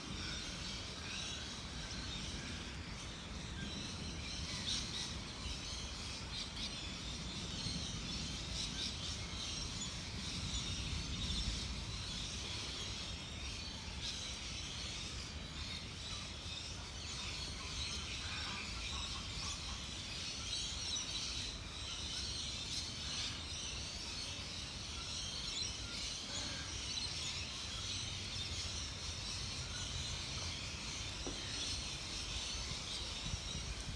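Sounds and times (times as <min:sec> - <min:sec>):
wind rumble: 0:01.6 - 0:16.0, 0:30.0 - 0:33.9.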